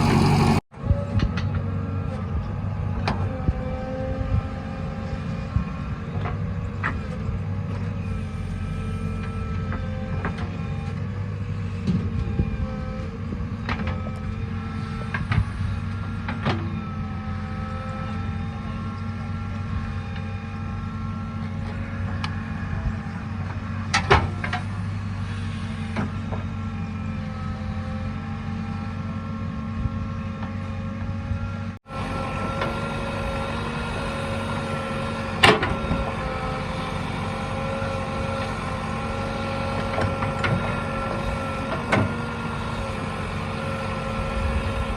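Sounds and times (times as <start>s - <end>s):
heavy diesel machinery running: 0.0s - 0.6s, 1.6s - 44.9s.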